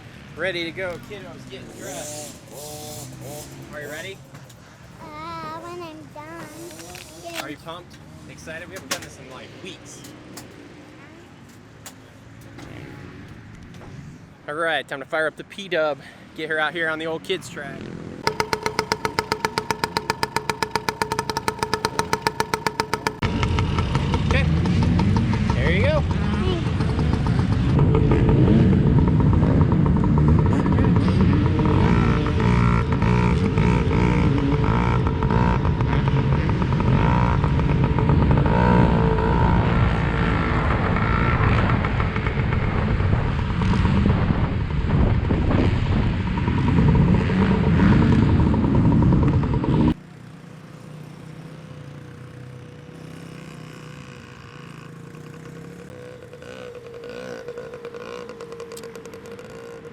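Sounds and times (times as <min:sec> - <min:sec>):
small two-stroke engine revving: 0:01.1 - 0:04.3, 0:06.3 - 0:07.6, 0:18.1 - 0:44.6, 0:45.4 - 0:50.3, 0:50.9 - 0:59.9
clattering: 0:18.2 - 0:23.2.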